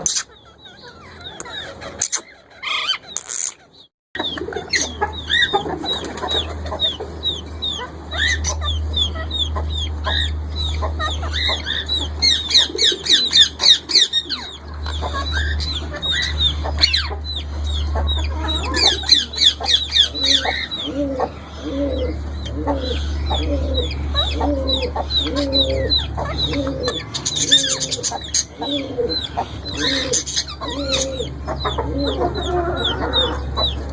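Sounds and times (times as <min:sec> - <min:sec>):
parrot chicks chirping: 0:00.0 - 0:33.9
steady low hum: 0:04.2 - 0:33.9.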